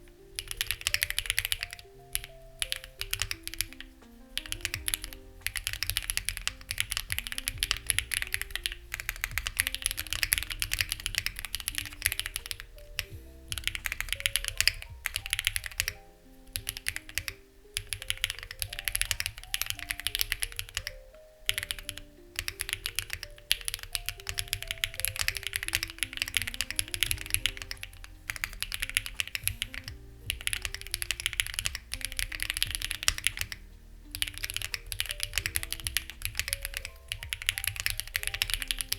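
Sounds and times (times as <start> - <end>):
fast typing on mechanical keyboard: 0.0 - 38.9
soft background music: 0.0 - 38.9.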